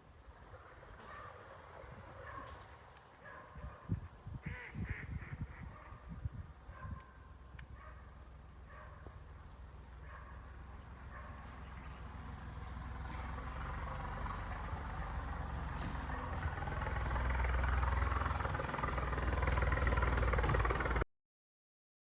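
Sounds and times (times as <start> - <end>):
motor engine running: 7.8 - 21.0.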